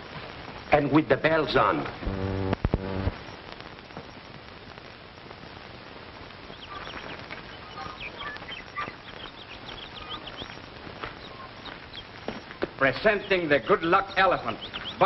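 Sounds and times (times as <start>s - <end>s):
film soundtrack hiss: 0.0s - 15.0s
short bird calls: 6.5s - 12.1s.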